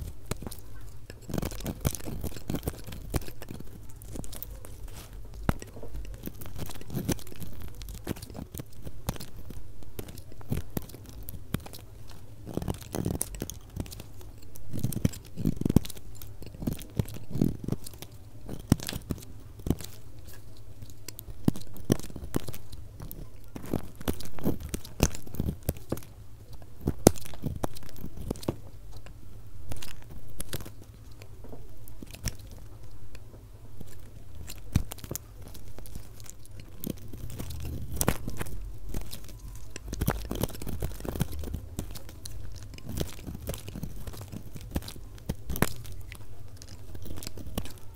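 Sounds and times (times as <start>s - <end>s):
bar soap crunching as cut: 0.0s - 47.9s
steady low hum: 0.0s - 47.9s.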